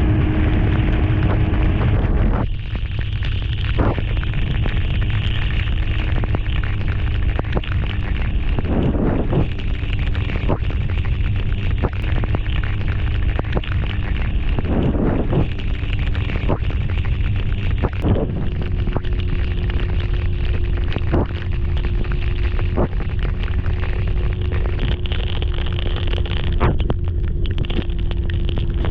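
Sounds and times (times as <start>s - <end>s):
motorcycle engine: 0.0s - 2.5s.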